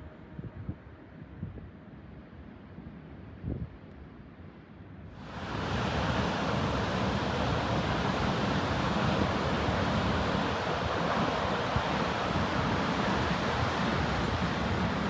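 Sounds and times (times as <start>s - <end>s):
wind rumble on microphone: 0.0s - 15.0s
sea waves breaking: 5.2s - 15.0s.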